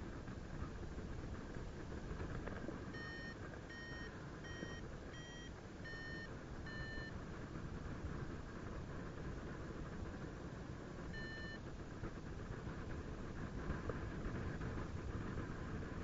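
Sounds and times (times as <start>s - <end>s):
variometer short beeps: 2.9s - 7.2s, 11.1s - 11.6s
wind rush on microphone: 11.8s - 16.0s.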